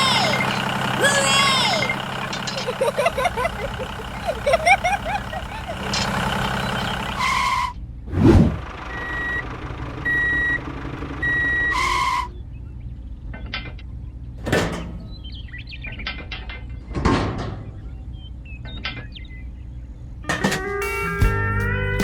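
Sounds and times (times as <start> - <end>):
vehicle reversing alarm beeping: 0.0 - 7.8, 8.7 - 13.1
low engine rumble: 0.0 - 22.0
short whoosh: 8.1 - 8.6.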